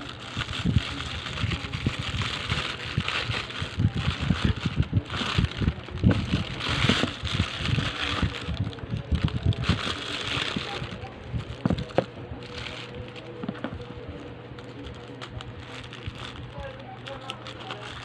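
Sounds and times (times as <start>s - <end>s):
handling knocks and bumps: 13.4s - 13.9s.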